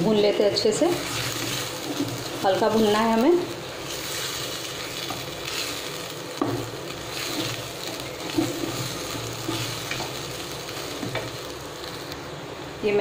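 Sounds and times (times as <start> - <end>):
paste sizzling in a pan: 0.6 - 12.2
spatula scraping and knocking pan: 6.4 - 10.2.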